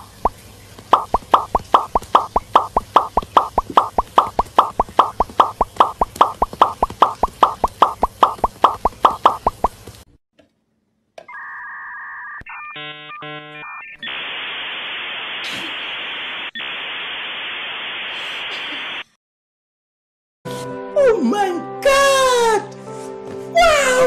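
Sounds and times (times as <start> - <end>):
rapid pops: 0.9 - 9.8
alternating beeps: 1.0 - 9.6
static hiss: 14.0 - 19.0.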